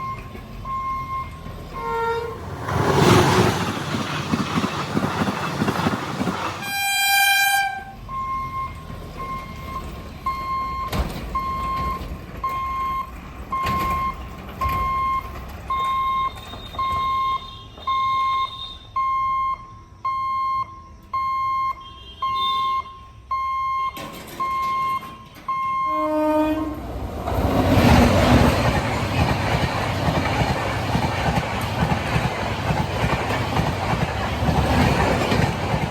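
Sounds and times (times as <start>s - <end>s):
electronic warning beeps: 0.0s - 1.9s, 8.1s - 26.2s
train rushing past: 0.0s - 10.3s, 25.9s - 35.9s
train horn blast: 1.8s - 2.6s, 6.6s - 8.0s, 25.9s - 27.1s.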